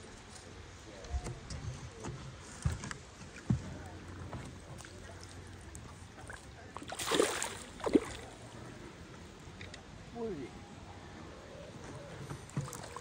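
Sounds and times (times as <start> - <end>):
fish thrashing splashes: 6.2 - 8.4, 12.6 - 13.0.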